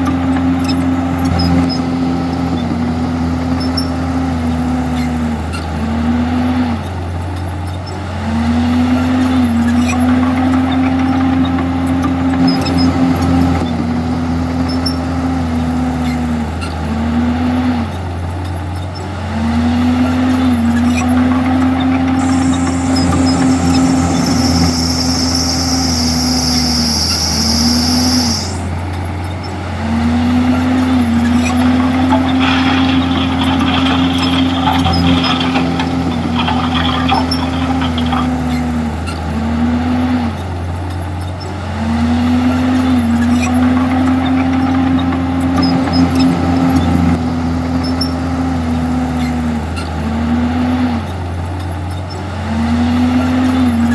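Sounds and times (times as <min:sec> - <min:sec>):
bulldozer diesel engine running: 0:00.0 - 0:50.0
metal clanking: 0:31.2 - 0:38.5.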